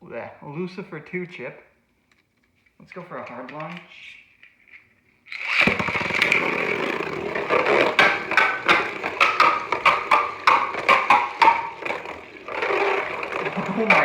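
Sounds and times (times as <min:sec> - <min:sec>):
spinning top sharp clacks: 0:05.2 - 0:14.0
spinning top hard launch: 0:05.3 - 0:14.0
spinning top scraping plastic stadium: 0:05.3 - 0:14.0.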